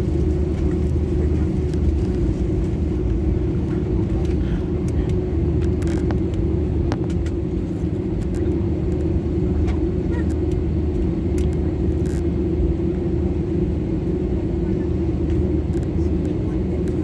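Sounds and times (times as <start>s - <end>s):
aircraft cabin engine hum: 0.0s - 17.0s
faint clicks and rattles: 0.1s - 12.2s.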